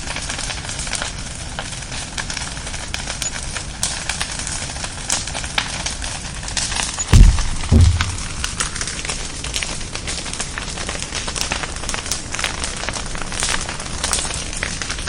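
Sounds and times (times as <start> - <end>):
bonfire crackling and popping: 0.0 - 15.0
low thumps: 7.1 - 8.5.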